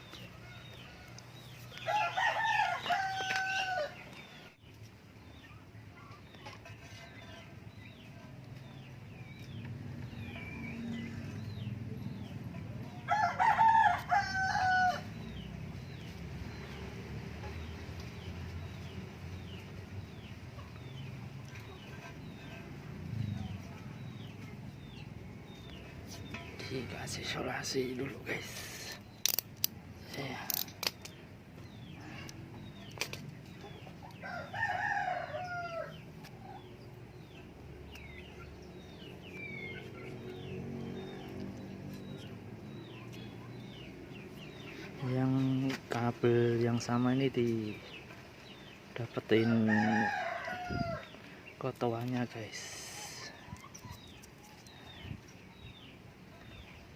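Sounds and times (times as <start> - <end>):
small birds chirping: 0.0 - 56.9
rooster crowing: 0.4 - 4.1, 13.0 - 15.2, 34.2 - 36.0, 49.4 - 51.2.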